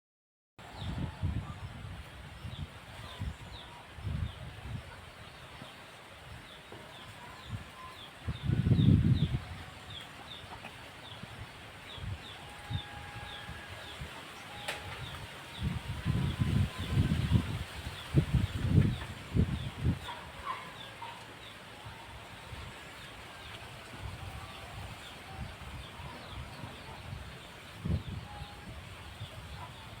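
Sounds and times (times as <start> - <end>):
wind buffeting microphone: 0.6 - 10.4, 11.0 - 20.8, 21.8 - 30.0
birds chirping: 2.4 - 23.7.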